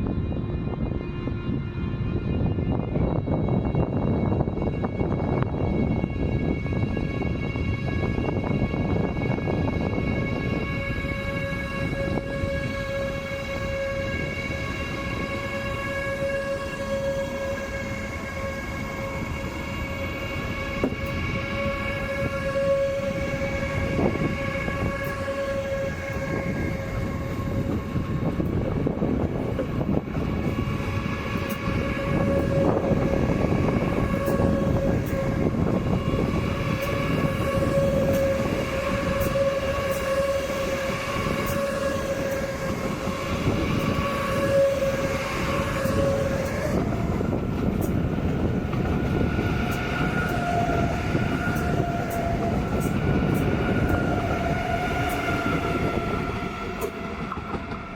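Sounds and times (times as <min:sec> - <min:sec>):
train high whine: 0:00.0 - 0:57.9
train rolling rumble: 0:00.0 - 0:57.9.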